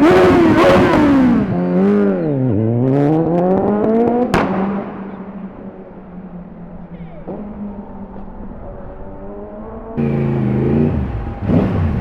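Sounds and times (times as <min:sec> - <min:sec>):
motorcycle engine revving: 0:00.0 - 0:05.5, 0:09.1 - 0:12.0.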